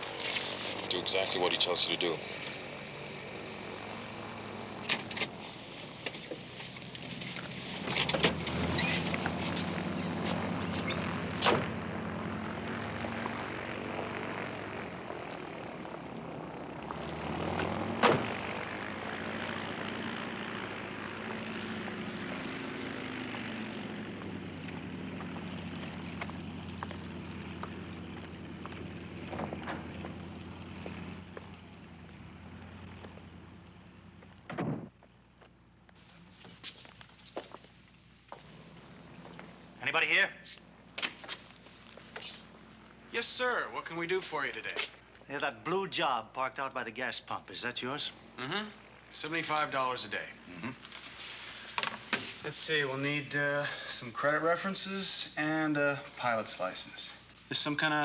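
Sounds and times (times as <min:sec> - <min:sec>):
propeller aircraft engine running: 0:00.0 - 0:45.4, 0:47.1 - 0:57.7.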